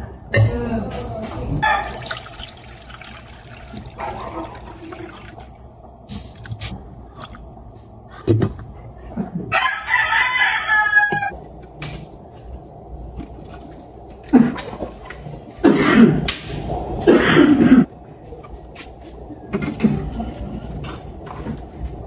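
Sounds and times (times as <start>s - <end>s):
rooster crowing: 9.5s - 11.4s.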